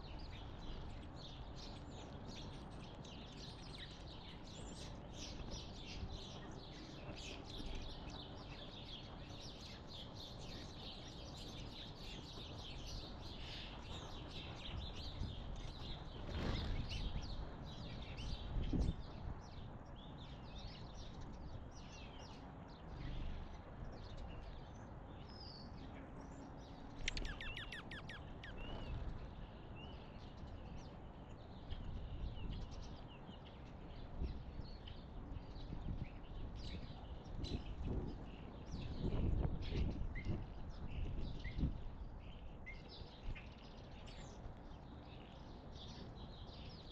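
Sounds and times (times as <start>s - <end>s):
songbirds chirping: 0.0s - 46.9s
bird trill: 27.0s - 29.0s.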